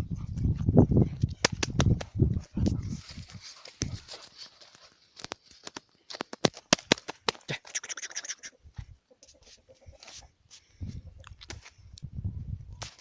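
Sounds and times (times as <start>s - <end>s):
puppies scuffling at play: 2.9s - 5.1s.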